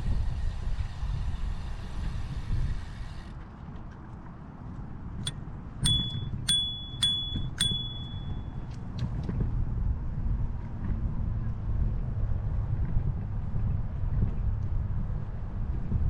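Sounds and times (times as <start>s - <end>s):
low wind: 0.0s - 16.0s
bicycle bell ringing: 5.8s - 8.6s.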